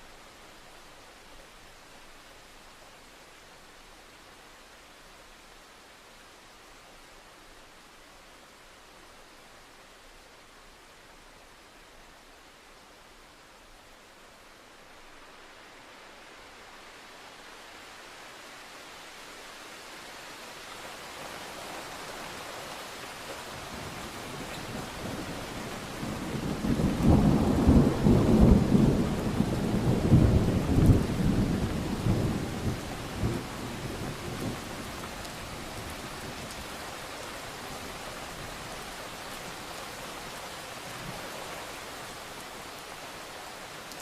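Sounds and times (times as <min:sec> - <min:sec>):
steady rain: 0:00.0 - 0:44.0
thunder rumbling: 0:26.0 - 0:34.7.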